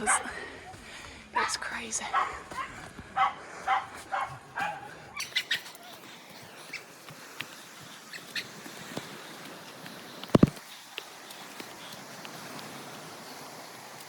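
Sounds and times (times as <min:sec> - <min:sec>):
dog barking: 0:00.0 - 0:00.3, 0:01.4 - 0:04.9.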